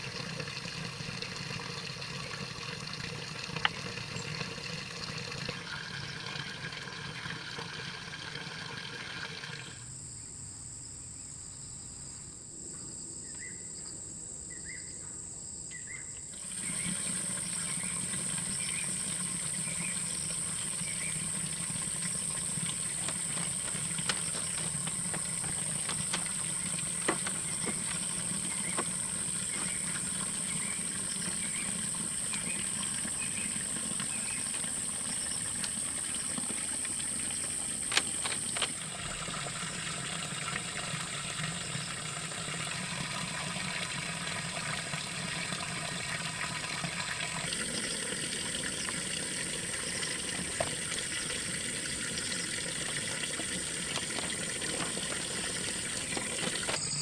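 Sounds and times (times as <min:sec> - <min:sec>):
insects chirring: 0:00.0 - 0:57.0
short insect chirps: 0:15.7 - 0:38.6, 0:55.2 - 0:57.0.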